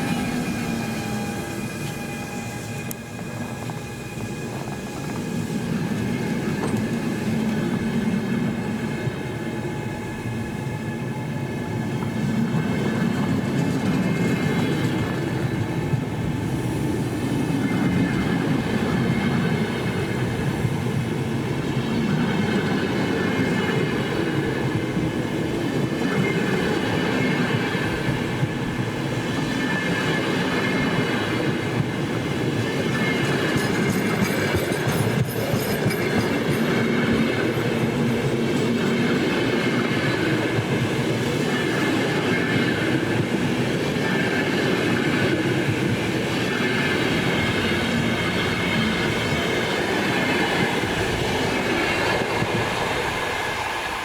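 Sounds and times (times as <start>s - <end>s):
high wheel squeal: 0.0s - 5.4s
train rolling on rails: 0.0s - 54.0s.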